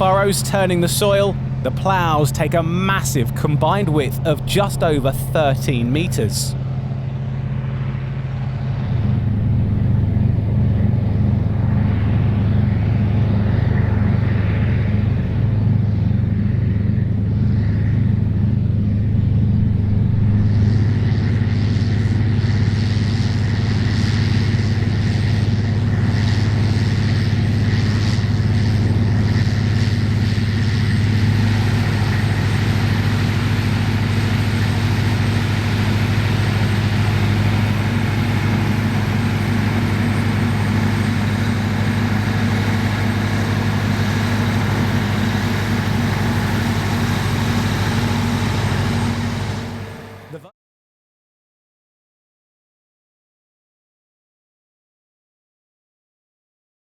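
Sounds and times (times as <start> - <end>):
tractor diesel engines under load: 0.0 - 6.6, 30.1 - 50.5.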